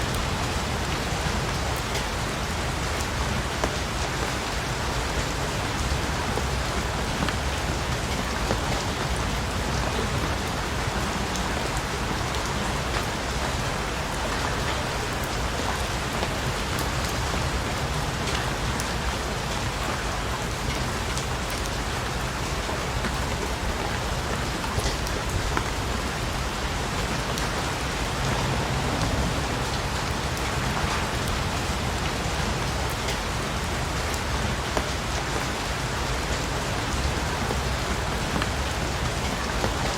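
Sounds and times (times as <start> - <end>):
steady rain: 0.0 - 39.9
low rumble: 27.8 - 31.7.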